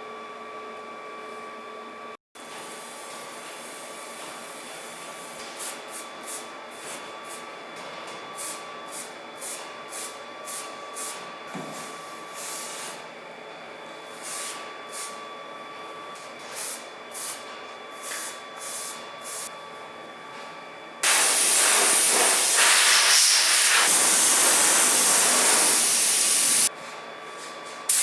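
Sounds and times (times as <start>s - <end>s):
hissing bursts of air: 21.0s - 26.7s.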